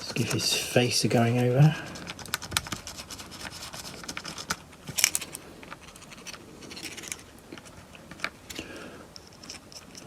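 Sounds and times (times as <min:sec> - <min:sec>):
paint pen scratching on plastic: 0:00.0 - 0:04.9.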